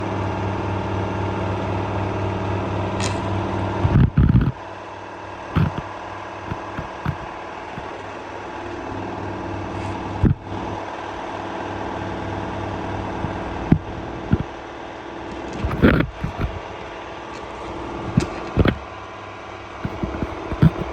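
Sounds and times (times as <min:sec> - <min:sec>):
washing machine spinning hum: 0:00.0 - 0:20.9
knocks: 0:05.6 - 0:05.9, 0:06.5 - 0:07.9, 0:15.6 - 0:16.6, 0:18.2 - 0:18.8, 0:19.8 - 0:20.9
loud thumps: 0:05.6 - 0:05.9, 0:06.5 - 0:07.9, 0:13.2 - 0:14.5, 0:15.6 - 0:16.6, 0:18.2 - 0:18.8, 0:19.8 - 0:20.9.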